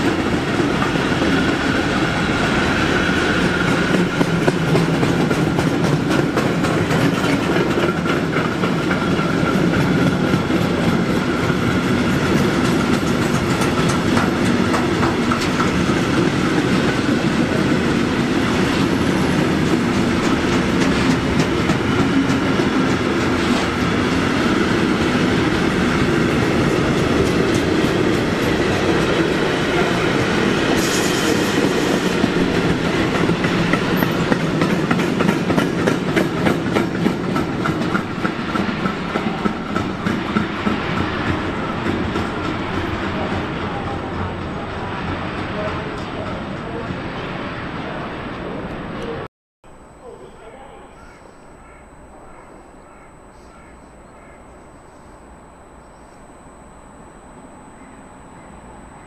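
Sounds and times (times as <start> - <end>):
wheels clacking over rail joints: 0.0 - 46.9
train rumble: 0.0 - 59.0.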